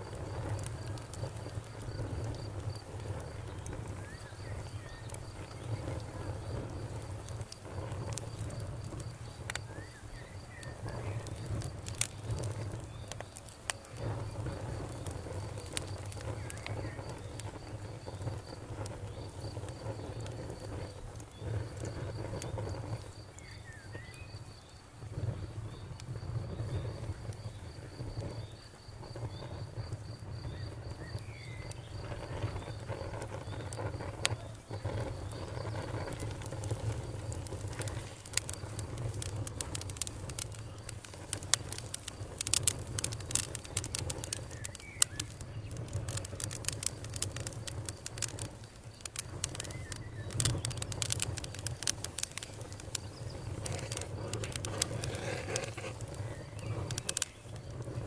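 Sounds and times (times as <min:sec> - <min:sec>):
campfire crackling and popping: 0:00.0 - 0:58.0
insect trilling: 0:30.3 - 0:58.0.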